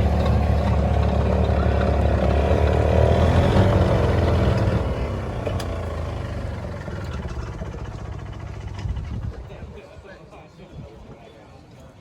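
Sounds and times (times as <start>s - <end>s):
vehicle engine running: 0.0s - 9.5s.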